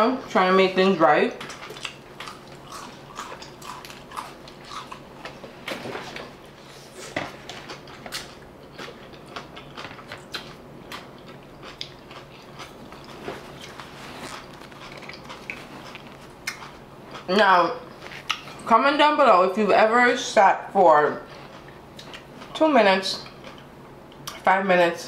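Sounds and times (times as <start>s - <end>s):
chewing crunchy food: 1.3s - 18.7s, 21.2s - 22.6s, 23.2s - 24.4s.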